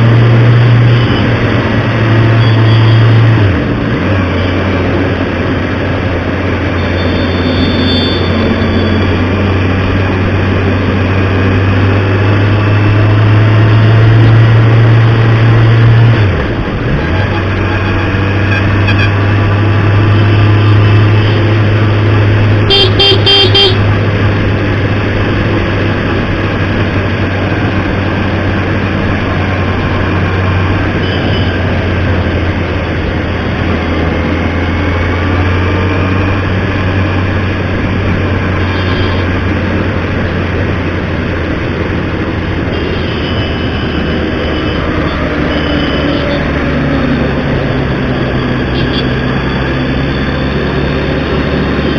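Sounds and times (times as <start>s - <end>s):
traffic engine drone: 0.0s - 51.9s
vehicle horn beeping: 2.4s - 3.3s, 6.8s - 9.0s, 17.0s - 19.2s, 22.7s - 23.8s, 31.0s - 31.7s, 38.6s - 39.3s, 42.7s - 46.6s, 48.8s - 49.1s.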